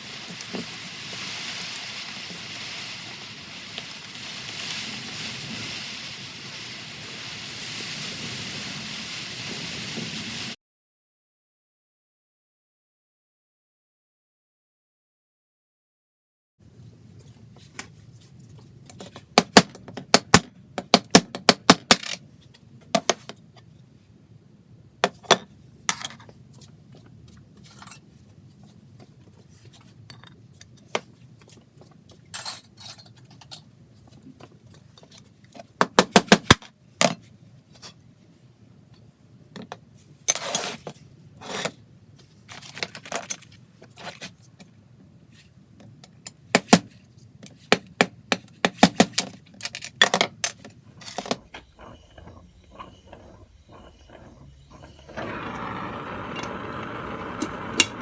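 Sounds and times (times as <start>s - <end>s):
short scrapes: 51.0s - 58.0s.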